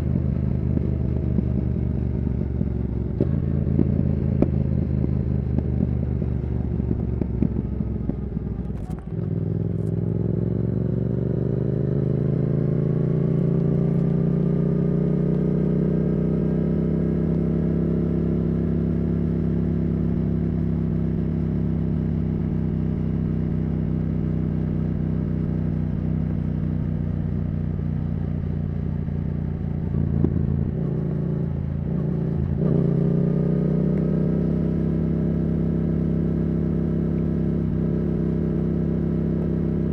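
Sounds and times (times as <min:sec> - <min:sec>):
motorcycle engine riding: 0:00.0 - 0:39.9.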